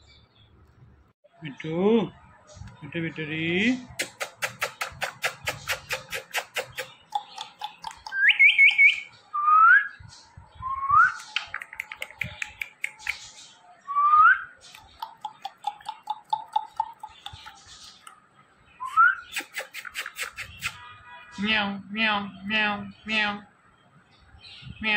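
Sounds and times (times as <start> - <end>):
parrot pulsing chatter: 3.9 - 8.7, 14.7 - 18.0, 19.3 - 20.8.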